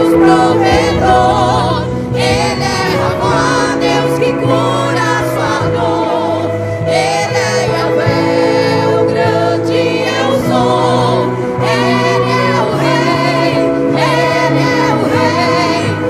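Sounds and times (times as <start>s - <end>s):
sustained bass accompaniment: 0.0s - 16.0s
women's vocal group singing: 0.0s - 16.0s.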